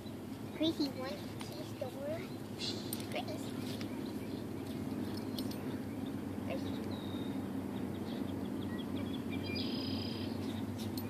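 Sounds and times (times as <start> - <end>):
birds calling: 0.0 - 11.0
low background noise: 0.0 - 11.0
bird whistle: 8.7 - 10.4.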